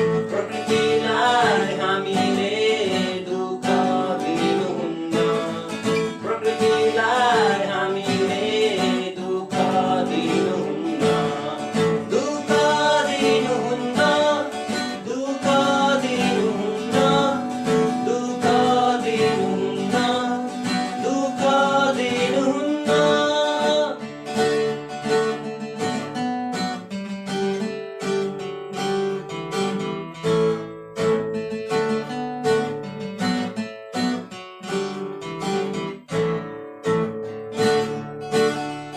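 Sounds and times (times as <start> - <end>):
strummed acoustic guitar: 0.0 - 38.9
person singing a wavering melody: 0.2 - 24.0.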